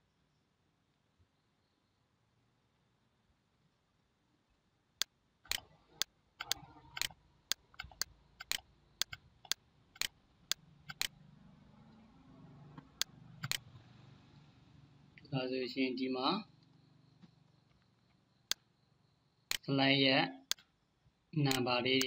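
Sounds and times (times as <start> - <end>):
computer mouse clicks: 5.5 - 11.2, 12.8 - 13.7, 19.5 - 19.7.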